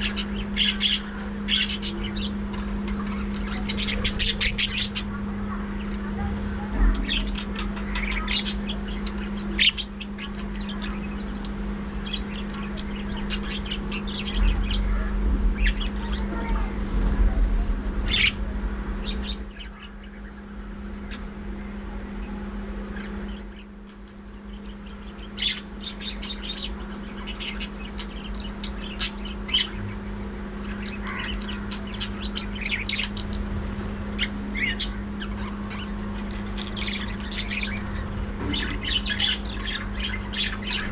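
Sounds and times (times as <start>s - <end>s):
budgerigars chirping and chattering: 0.0s - 40.9s
steady low hum: 0.0s - 40.9s.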